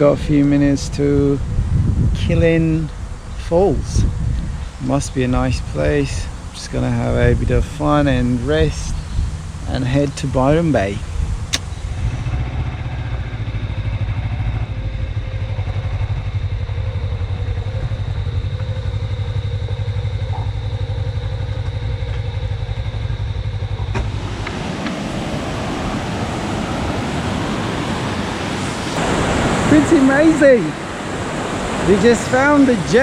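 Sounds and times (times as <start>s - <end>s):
motorcycle engine running: 11.0s - 25.2s
waterfall rushing: 24.0s - 33.0s.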